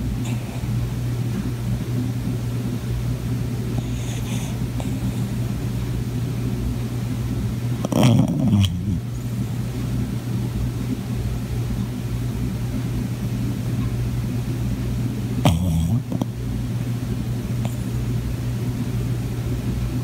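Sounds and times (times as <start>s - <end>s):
dog snoring: 0.0s - 0.8s, 3.7s - 5.6s, 7.8s - 9.6s, 15.4s - 16.4s, 17.5s - 18.1s
steady low hum: 0.0s - 20.0s.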